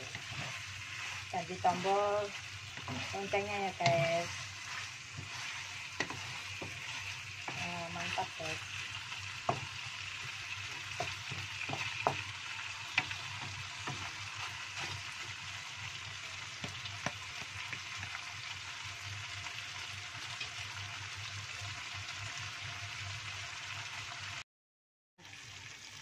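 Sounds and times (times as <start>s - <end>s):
chicken sizzling in a wok: 0.0s - 24.4s, 25.2s - 26.0s
wooden spatula knocking pan: 1.4s - 8.6s, 9.3s - 15.1s, 16.5s - 18.0s.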